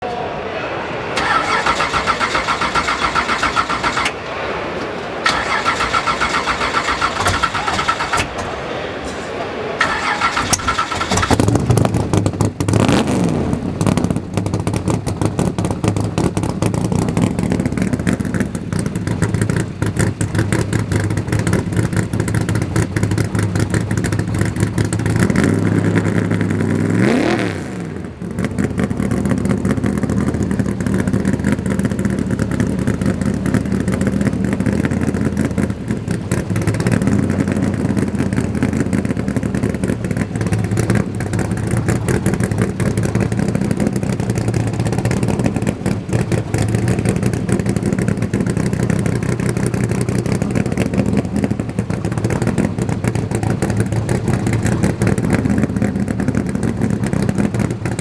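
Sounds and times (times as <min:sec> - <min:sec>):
car engine idling and revving: 0:01.2 - 0:58.0.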